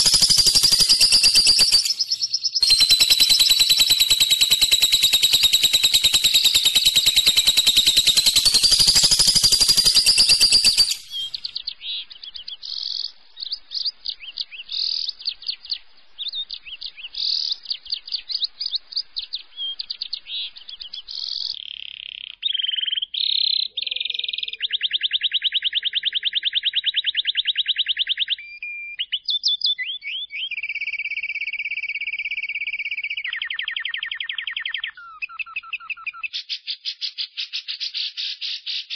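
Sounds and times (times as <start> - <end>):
lovebird chattering trills: 0.0 - 11.6.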